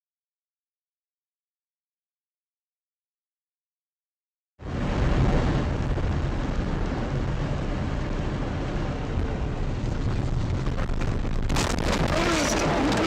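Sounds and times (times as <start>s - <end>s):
car interior road and engine rumble: 4.7s - 13.0s.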